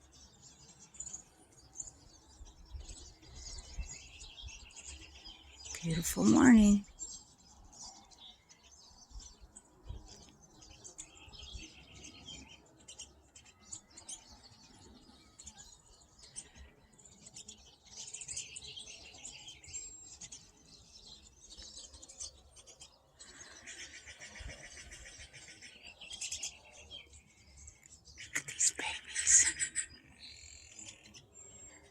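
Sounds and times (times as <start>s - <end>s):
birds chirping and twittering: 0.0s - 31.9s.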